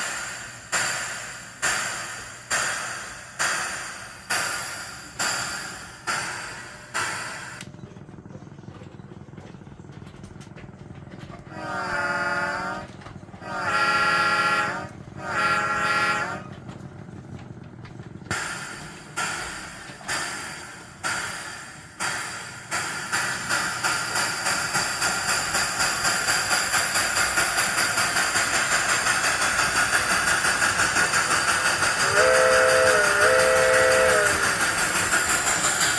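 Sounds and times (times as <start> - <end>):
steam chuffs: 0.0 - 17.4, 18.2 - 35.9
model train whistle blasts: 11.5 - 16.6, 27.5 - 35.9.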